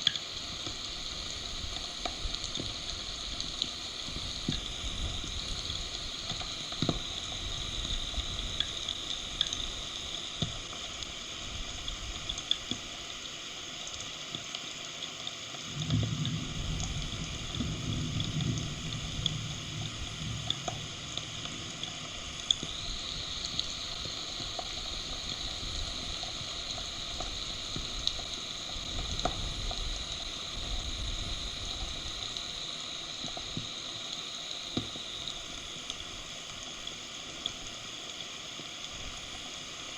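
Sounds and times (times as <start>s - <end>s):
raindrop ticks: 0.0s - 10.8s, 15.6s - 36.0s
heavy rain hissing: 0.0s - 12.3s, 15.6s - 39.9s
low thunder rumble: 15.9s - 21.1s.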